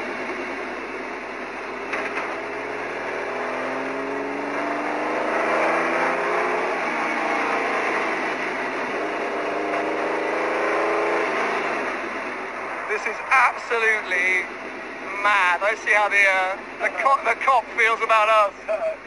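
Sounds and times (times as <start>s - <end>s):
race car engine accelerating: 1.9s - 13.0s.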